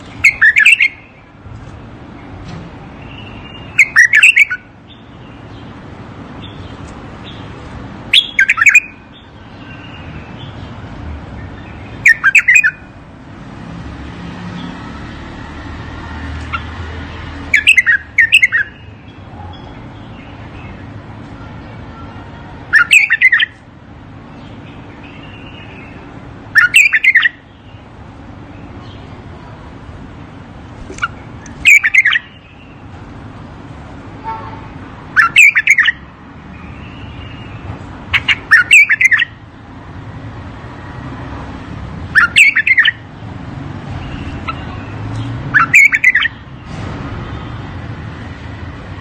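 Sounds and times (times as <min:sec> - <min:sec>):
bird song phrases: 0:00.0 - 0:01.4, 0:02.0 - 0:12.9, 0:16.4 - 0:23.6, 0:24.2 - 0:30.2, 0:30.9 - 0:33.0, 0:34.3 - 0:39.4, 0:42.1 - 0:43.1, 0:43.9 - 0:47.6.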